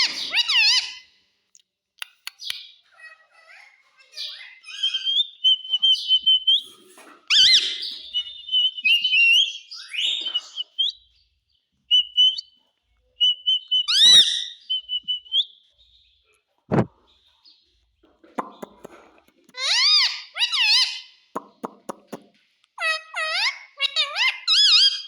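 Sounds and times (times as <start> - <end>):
parrot whistling and chattering: 13.2 - 15.4.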